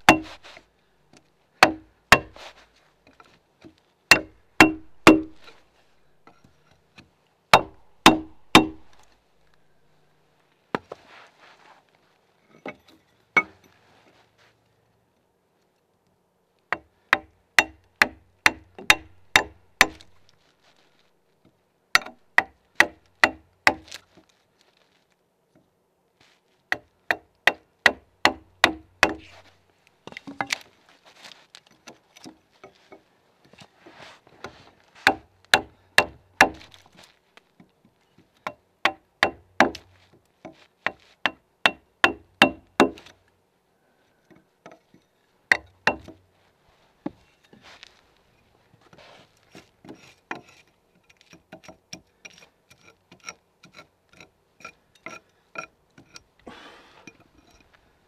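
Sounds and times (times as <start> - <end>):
soft scraping and rustling: 0.2 - 1.5, 2.3 - 4.0, 10.4 - 15.9, 20.0 - 21.6, 23.8 - 26.7, 29.2 - 35.1, 36.6 - 38.4, 39.8 - 41.2, 46.3 - 51.5, 56.0 - 58.0
axe chopping into log: 1.6 - 2.4, 4.1 - 5.4, 7.6 - 9.0, 27.5 - 29.3, 35.0 - 36.8.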